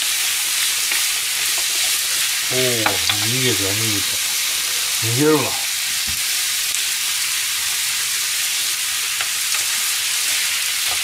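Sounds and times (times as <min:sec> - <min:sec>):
vegetables and meat sizzling: 0:00.0 - 0:11.0
wooden spatula knocking: 0:02.8 - 0:03.3.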